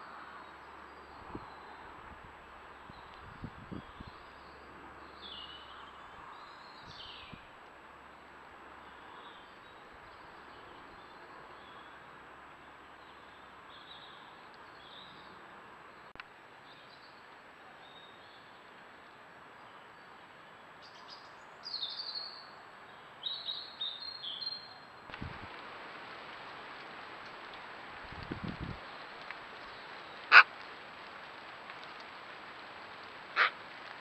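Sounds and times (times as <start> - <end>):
steady hiss: 25.0 - 34.0.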